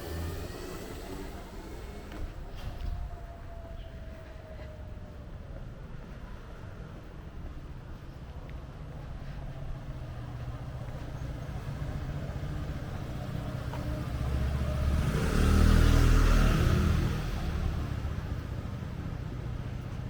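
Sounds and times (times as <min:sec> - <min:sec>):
vehicle passing close by: 0:00.0 - 0:03.0, 0:09.9 - 0:20.0
low traffic rumble: 0:00.0 - 0:20.0.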